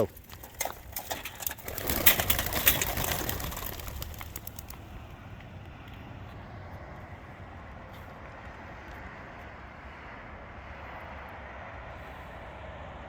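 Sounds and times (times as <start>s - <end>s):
pigeons' wingbeats clattering: 0.0s - 5.2s.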